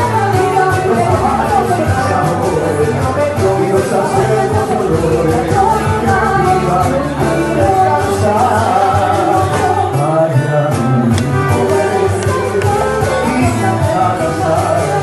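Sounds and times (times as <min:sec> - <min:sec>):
instrumental accompaniment: 0:00.0 - 0:15.0
person singing a latin song: 0:00.0 - 0:15.0
steady bass line: 0:00.0 - 0:15.0.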